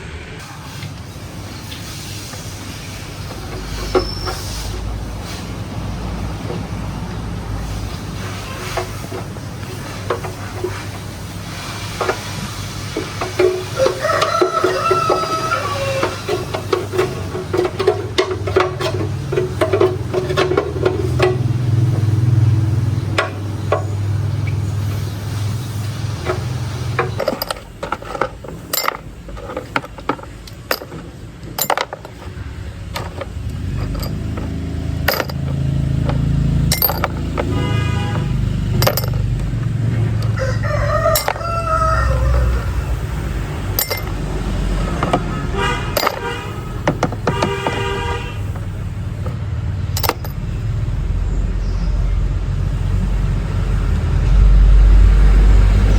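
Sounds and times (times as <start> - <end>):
rooster crowing: 13.7 - 16.5, 40.1 - 43.2
sharp clinks: 33.0 - 37.4, 38.7 - 39.5, 41.1 - 41.5, 43.8 - 44.2, 50.0 - 50.4.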